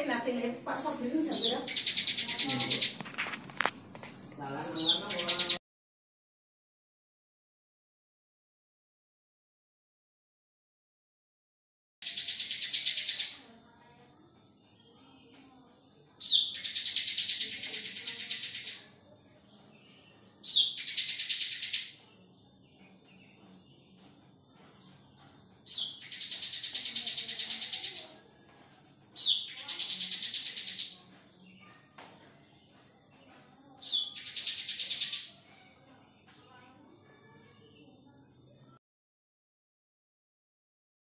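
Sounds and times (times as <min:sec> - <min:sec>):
bird high-pitched trilling: 0:01.3 - 0:03.0, 0:04.8 - 0:05.6, 0:12.0 - 0:13.4, 0:16.2 - 0:18.9, 0:20.4 - 0:22.0, 0:25.6 - 0:28.2, 0:29.2 - 0:31.0, 0:33.8 - 0:35.5.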